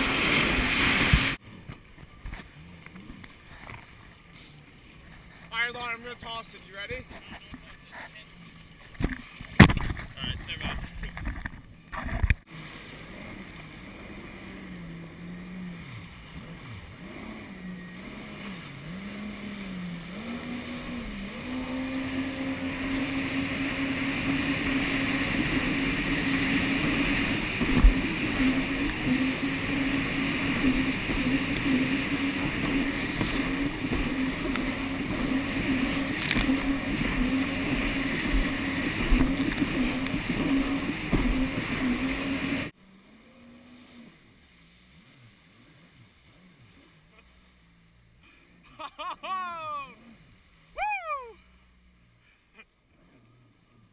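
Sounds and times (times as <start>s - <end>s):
jet ski engine revving: 0.0s - 53.9s.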